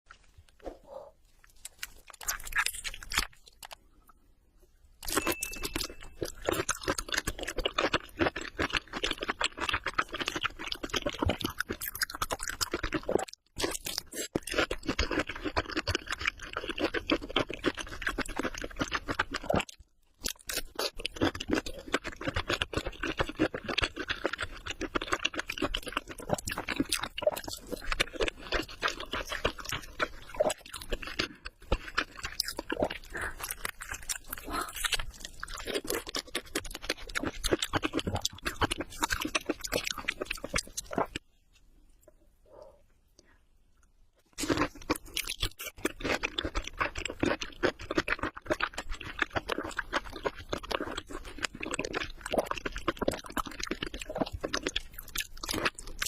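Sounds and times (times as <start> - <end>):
crunching and chewing: 0.1 - 4.1, 5.0 - 41.3, 43.8 - 56.0.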